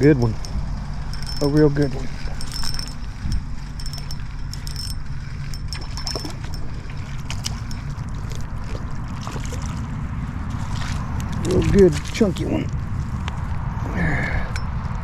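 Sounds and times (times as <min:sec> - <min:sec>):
fishing reel cranking: 0:00.3 - 0:06.7, 0:07.4 - 0:08.0.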